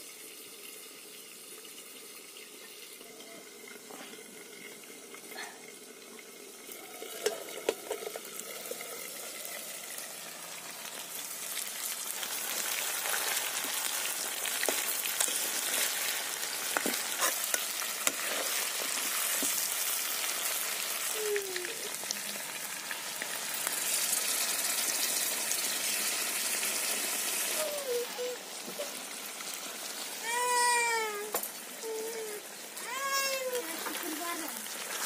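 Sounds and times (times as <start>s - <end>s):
chicken sizzling in oil: 0.0s - 35.0s
metal spatula scraping a wok: 15.2s - 19.5s.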